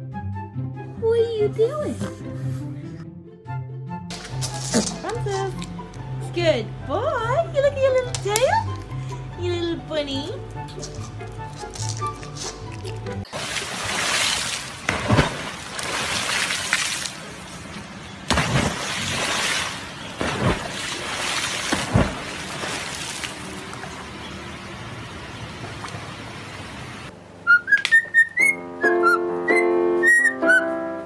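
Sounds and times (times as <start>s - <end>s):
wind: 4.1s - 30.6s
water splashing: 11.6s - 27.0s
rushing water: 11.6s - 27.1s.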